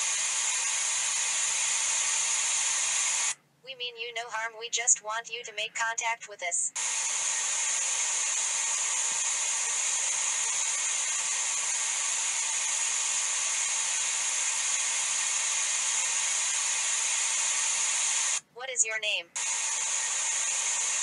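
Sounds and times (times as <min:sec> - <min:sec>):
steady hiss: 0:00.0 - 0:03.4, 0:06.8 - 0:18.4, 0:19.4 - 0:21.0.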